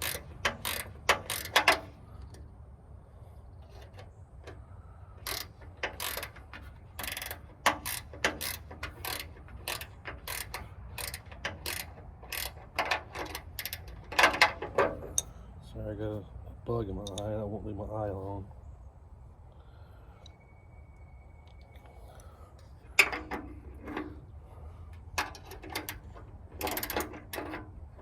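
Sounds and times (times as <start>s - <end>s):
ratchet wrench clicking: 0.0s - 2.4s, 5.2s - 15.3s, 25.1s - 27.8s.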